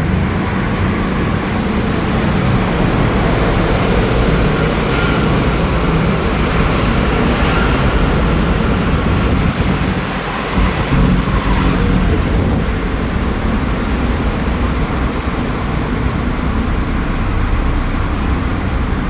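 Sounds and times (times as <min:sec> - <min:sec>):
motorcycle engine exhaust note: 0:09.3 - 0:15.0.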